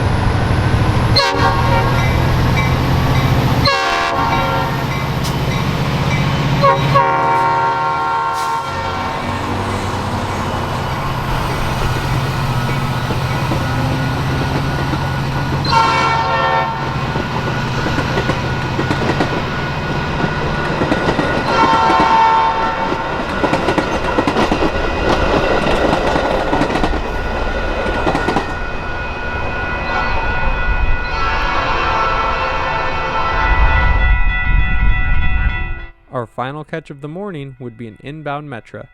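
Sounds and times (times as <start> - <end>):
diesel locomotive running: 0.0 - 35.8
locomotive horn: 1.0 - 12.2, 15.5 - 17.2, 21.4 - 23.2, 29.9 - 36.2
wheels clacking over rail joints: 9.2 - 16.2, 16.8 - 28.6.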